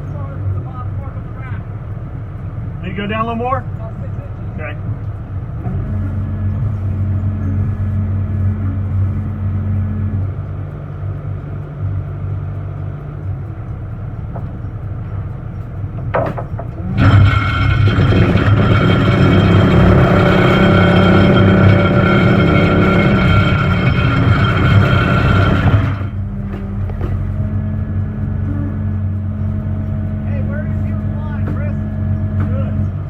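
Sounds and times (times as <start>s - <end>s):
engine revving: 16.8s - 33.0s.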